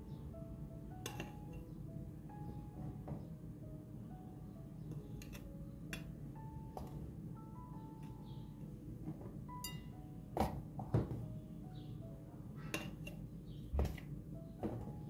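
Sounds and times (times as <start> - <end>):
soft background music: 0.0 - 15.0
metal spoon clinking against bowl: 9.6 - 9.9.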